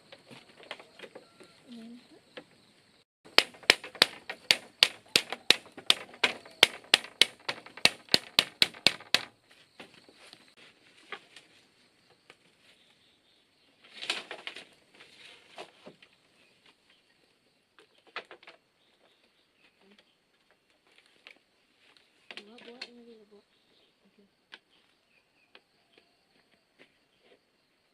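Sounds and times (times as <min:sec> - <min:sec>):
hammer blows: 0:03.3 - 0:09.3.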